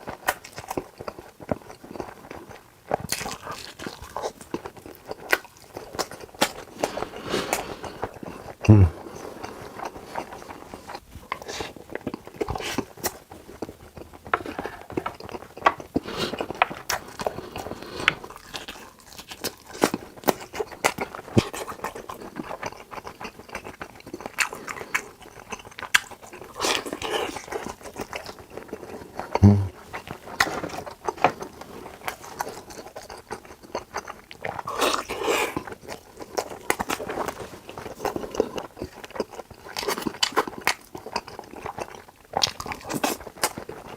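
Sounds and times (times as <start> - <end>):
chewing and biting food: 0.0 - 43.9.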